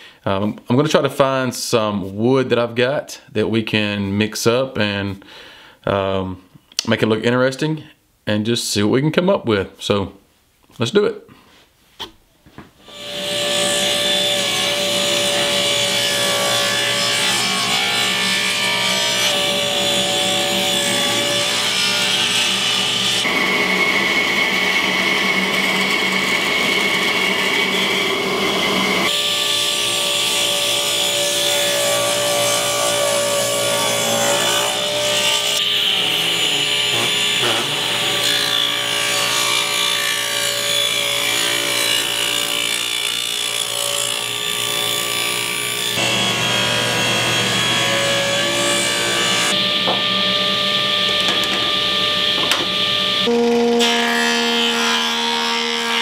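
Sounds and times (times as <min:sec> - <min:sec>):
table saw cutting wood: 0:12.8 - 0:56.0.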